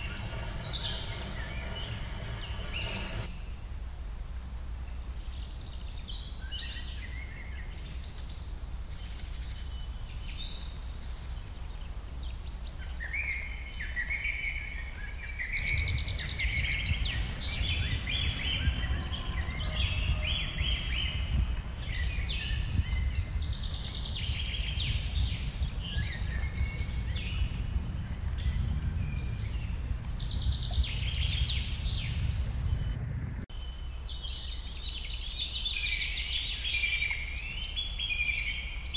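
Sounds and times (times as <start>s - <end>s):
small birds chirping and singing: 0.0s - 3.8s, 4.6s - 38.9s
steady low rumble: 0.0s - 5.9s, 14.6s - 34.8s.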